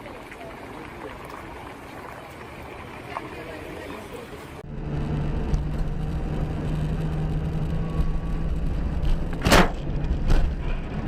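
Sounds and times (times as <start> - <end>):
road noise: 0.0 - 11.0
car engine drone: 4.6 - 11.0.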